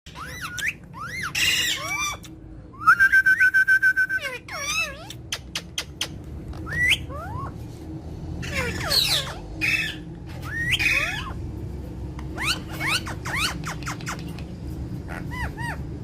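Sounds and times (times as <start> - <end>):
parrots squawking: 0.1 - 2.3, 4.2 - 7.6, 8.4 - 11.6, 12.2 - 16.0
parrots whistling: 0.1 - 7.6, 8.4 - 11.4, 12.2 - 14.4, 15.0 - 16.0.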